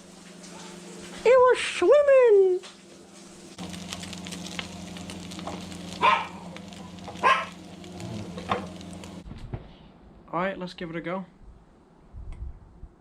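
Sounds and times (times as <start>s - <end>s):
fish sizzling in a pan: 2.8s - 9.2s
low hum: 3.6s - 9.2s.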